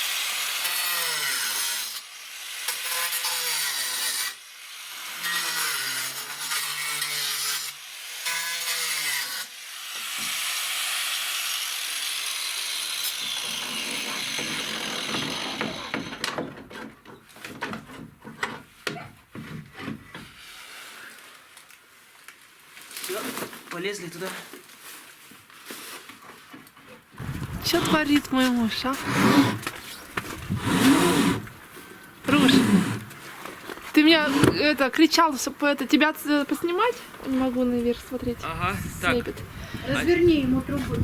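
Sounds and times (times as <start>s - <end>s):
electric saw cutting roof sheet: 0.0s - 16.5s, 27.2s - 31.6s, 32.2s - 33.3s, 34.1s - 34.7s.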